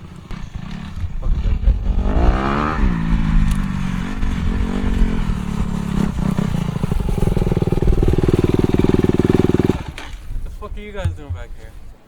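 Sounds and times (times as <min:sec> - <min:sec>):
dirt bike engine revving: 0:00.0 - 0:10.4.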